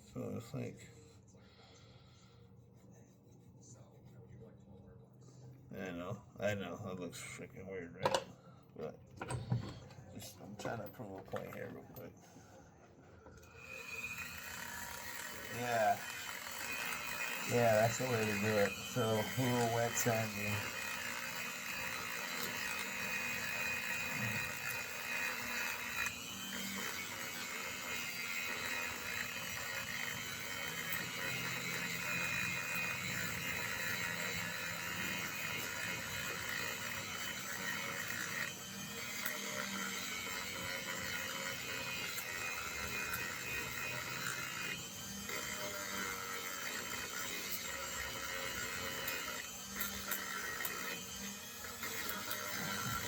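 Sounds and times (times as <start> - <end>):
rotary tool whining: 9.1 - 53.0.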